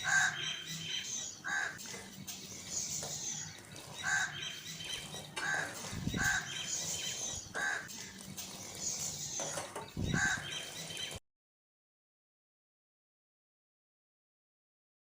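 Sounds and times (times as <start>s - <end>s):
faint high-pitched chirping: 0.0s - 11.2s.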